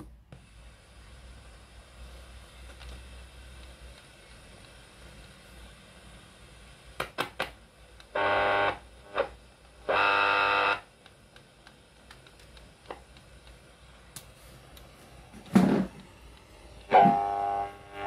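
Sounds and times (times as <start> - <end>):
short steady buzzes: 8.1 - 10.9, 16.6 - 18.0.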